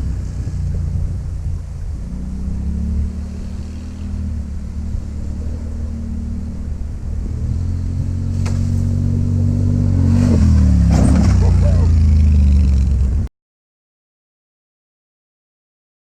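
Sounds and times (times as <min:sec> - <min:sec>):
off-road vehicle engine running: 0:00.0 - 0:13.3.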